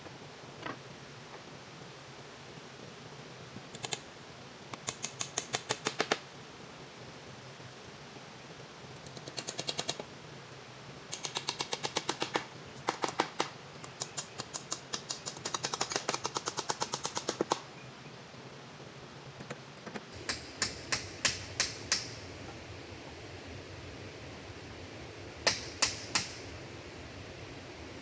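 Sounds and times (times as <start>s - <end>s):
rapid sharp taps: 11.1s - 17.6s, 19.4s - 22.2s, 25.4s - 26.4s.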